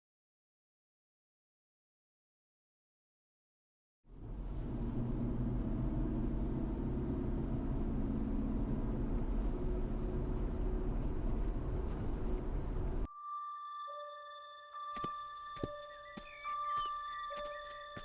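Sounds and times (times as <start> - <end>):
vehicle rumbling: 4.1 - 13.1
electronic tones: 13.1 - 18.0.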